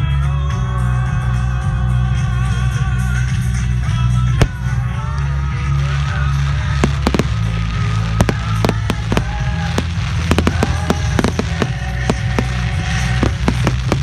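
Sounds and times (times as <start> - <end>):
music: 0.0 - 14.0
fireworks bangs and cracks: 4.4 - 14.0.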